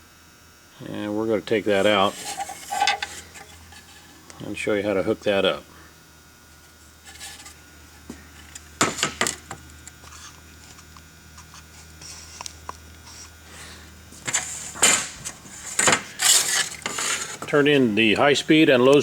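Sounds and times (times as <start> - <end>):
tools clinking and scraping on metal: 1.9 - 3.8, 15.8 - 18.4.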